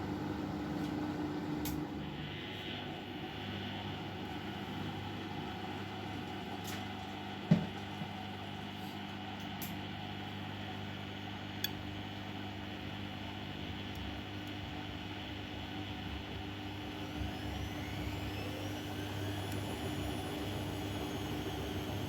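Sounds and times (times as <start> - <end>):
washing machine motor hum: 12.2 - 22.0.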